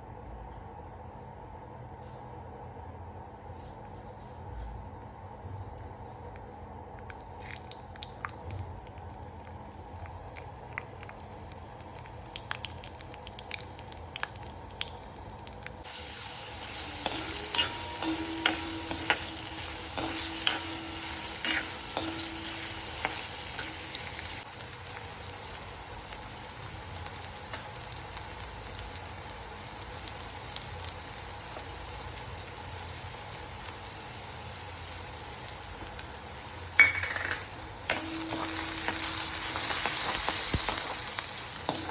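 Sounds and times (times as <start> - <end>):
food sizzling in hot oil: 7.3 - 41.9
spoon clinking and scraping: 16.7 - 24.4.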